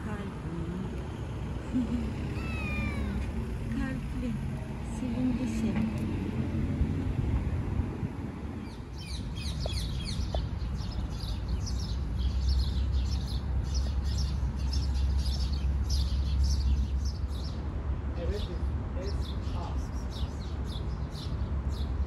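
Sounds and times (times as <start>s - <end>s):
small birds chirping: 8.6s - 22.0s.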